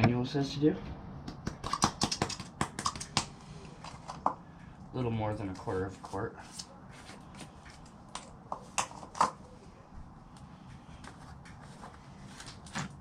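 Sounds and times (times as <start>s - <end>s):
hands clicking and tapping: 1.2s - 3.4s.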